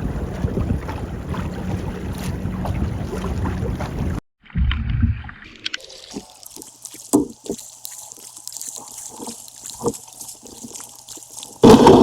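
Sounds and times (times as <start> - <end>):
water lapping against kayak hull: 0.0 - 4.2, 4.8 - 12.0
wind noise on microphone: 0.0 - 5.1.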